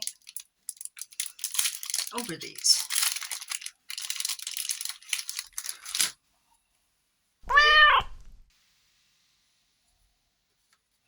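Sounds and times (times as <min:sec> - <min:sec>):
packaging crinkling: 0:00.0 - 0:06.2
cat meowing: 0:07.4 - 0:08.2.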